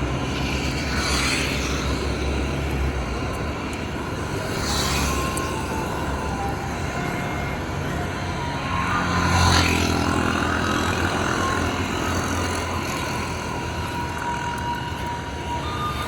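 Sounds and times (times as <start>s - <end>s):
vehicle passing by: 4.1s - 16.0s.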